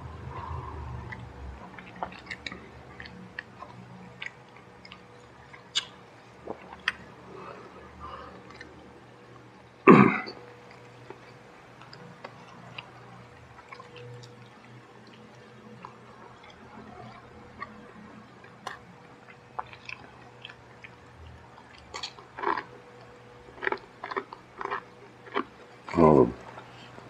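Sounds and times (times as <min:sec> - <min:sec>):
person chewing food: 0:00.2 - 0:27.0
wet mouth clicks: 0:05.6 - 0:07.0.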